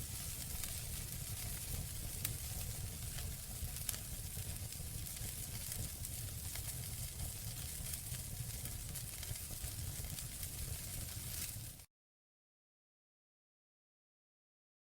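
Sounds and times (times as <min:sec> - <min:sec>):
campfire crackling and popping: 0:00.0 - 0:11.8.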